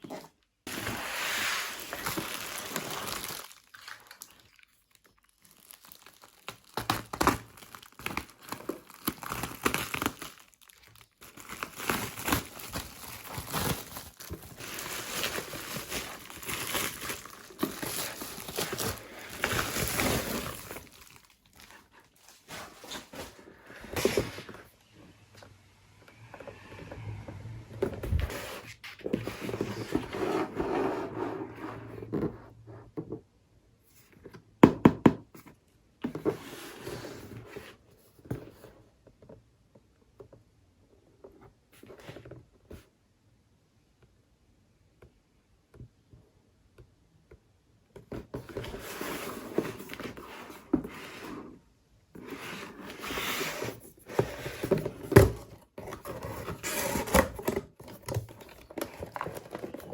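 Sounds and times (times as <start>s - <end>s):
packaging rustling and scraping: 0.0s - 3.8s, 5.3s - 24.8s, 26.2s - 32.4s, 48.1s - 51.6s, 52.2s - 59.9s.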